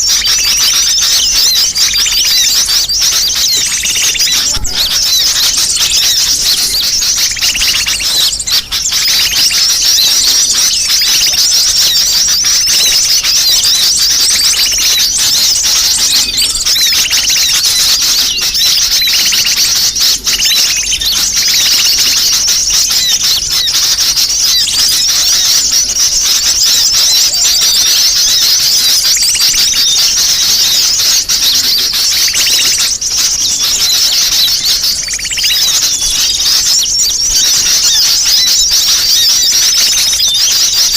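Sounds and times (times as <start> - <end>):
many birds chirping: 0.0 - 40.9.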